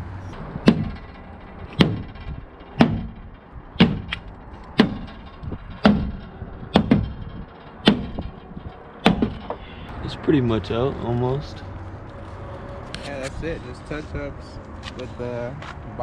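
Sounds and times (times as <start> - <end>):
hammer striking sheet metal: 0.3 - 9.9.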